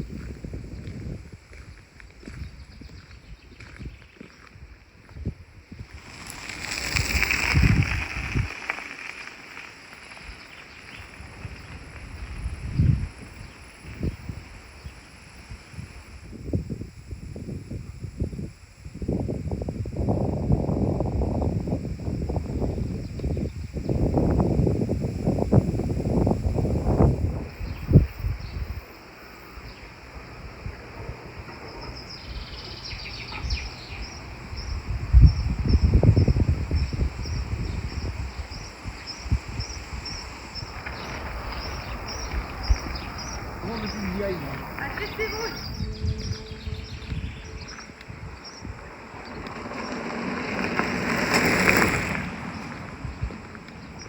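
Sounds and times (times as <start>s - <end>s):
soft outdoor hiss: 0.0s - 54.0s
songbirds chirping and trilling: 21.8s - 51.8s
vehicle passing by: 48.9s - 53.3s.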